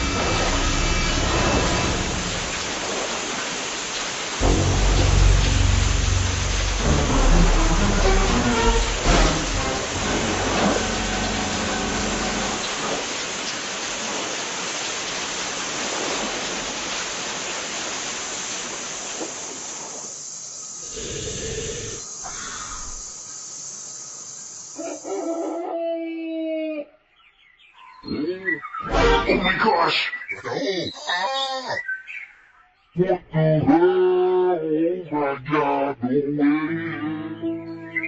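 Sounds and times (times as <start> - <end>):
rain hissing: 0.0 - 25.0.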